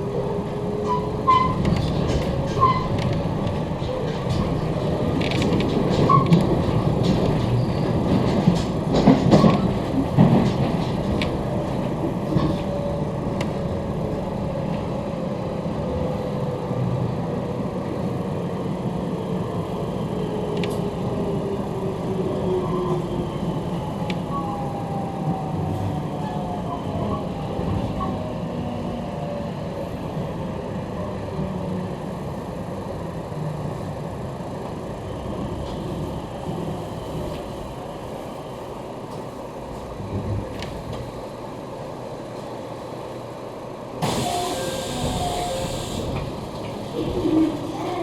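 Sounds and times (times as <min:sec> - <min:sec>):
train wheels rumbling: 0:00.0 - 0:48.0
air hiss: 0:44.0 - 0:46.2
train motor whine: 0:44.0 - 0:46.3.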